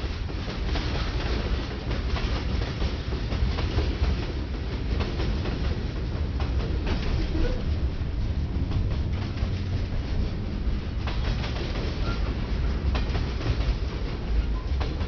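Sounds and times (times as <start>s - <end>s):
wheels clicking over rail joints: 0.1s - 15.0s
freight cars rumbling past: 7.4s - 12.9s.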